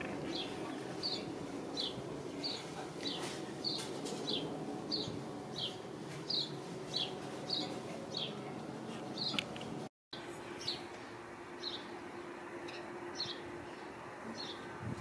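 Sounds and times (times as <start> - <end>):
bird chirping: 0.3 - 8.5, 9.2 - 9.5.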